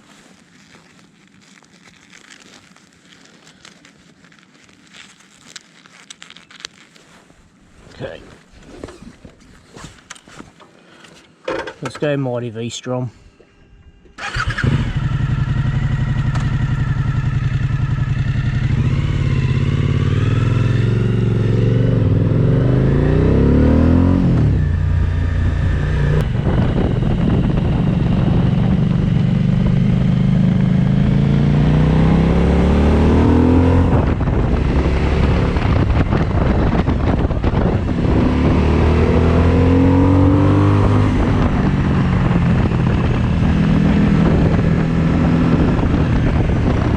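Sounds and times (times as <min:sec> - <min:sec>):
motorcycle engine accelerating: 0:13.7 - 0:46.9.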